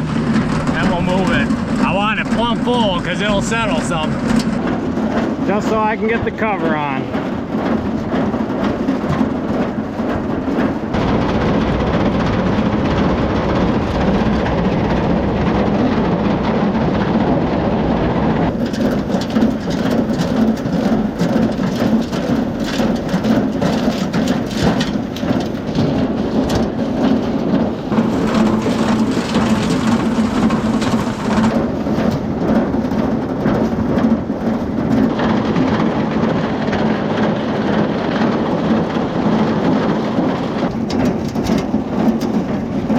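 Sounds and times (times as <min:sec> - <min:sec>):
conveyor humming: 0:00.0 - 0:08.6, 0:25.0 - 0:32.4
corn rattling and clattering: 0:00.0 - 0:17.6, 0:18.5 - 0:42.9.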